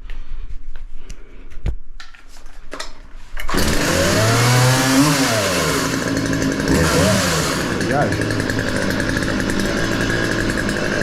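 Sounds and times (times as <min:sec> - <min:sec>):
chainsaw running and revving: 0:03.5 - 0:11.0.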